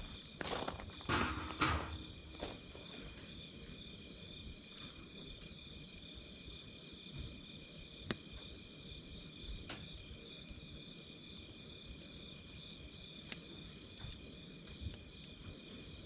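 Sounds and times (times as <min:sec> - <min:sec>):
crickets chirping: 0:00.0 - 0:16.0
campfire crackling and popping: 0:04.4 - 0:06.6, 0:07.3 - 0:16.0.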